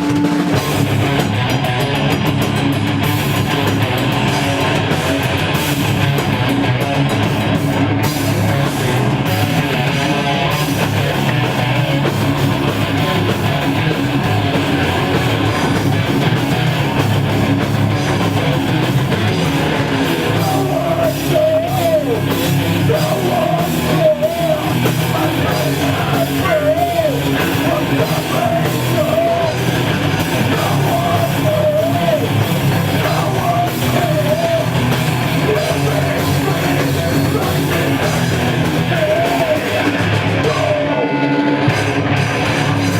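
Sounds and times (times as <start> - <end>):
heavy metal band playing: 0.0 - 42.9.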